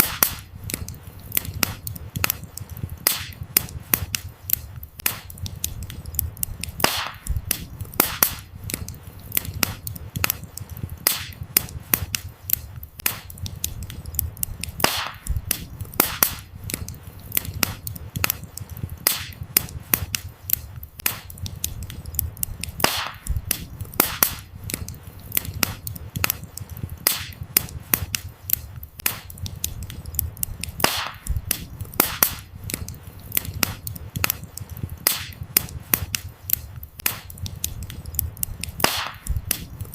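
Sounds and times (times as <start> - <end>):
firewood crackles and pops: 0.0 - 39.9
low rumble of flames: 0.0 - 39.9.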